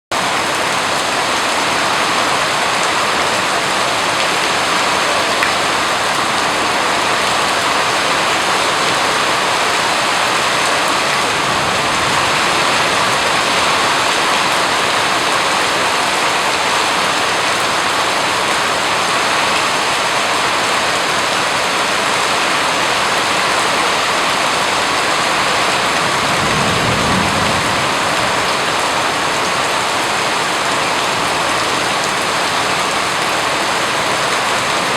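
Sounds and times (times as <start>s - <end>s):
rain falling: 0.1s - 34.9s.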